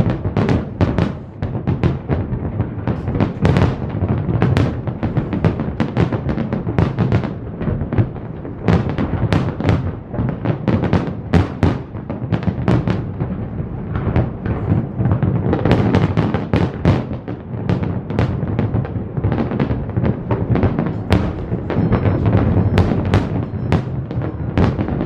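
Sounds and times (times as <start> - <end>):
fireworks shells bursting: 19.5 - 25.0.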